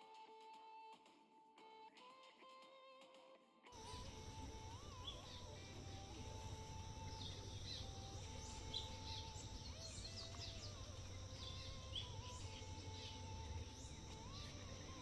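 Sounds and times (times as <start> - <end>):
high bird chirps: 3.8 - 15.0
steady low rumble: 3.8 - 15.0.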